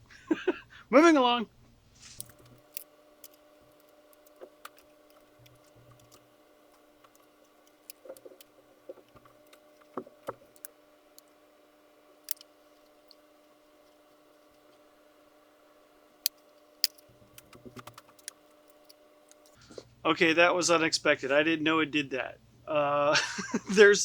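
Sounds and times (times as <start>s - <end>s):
faint steady hum: 0.0s - 24.0s
plastic parts clicking: 2.1s - 11.4s, 12.2s - 14.8s, 16.2s - 19.6s.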